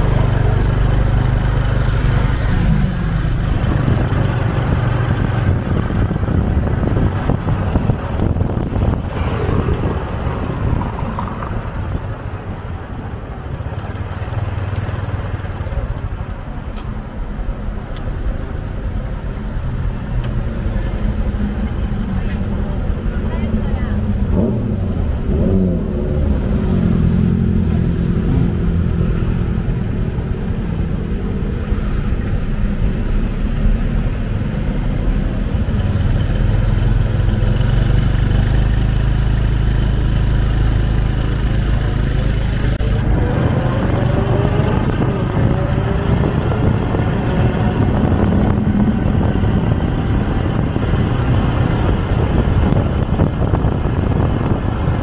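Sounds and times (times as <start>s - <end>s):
motorcycle engine running: 0.0s - 16.4s, 34.3s - 55.0s
traffic: 0.0s - 55.0s
wind rumble: 0.0s - 55.0s.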